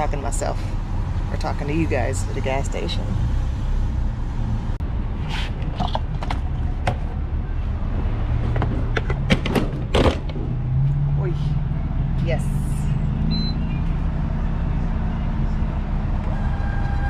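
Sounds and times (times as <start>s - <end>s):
car engine rumbling: 0.0s - 17.0s
sharp clicks and knocks: 8.4s - 10.5s.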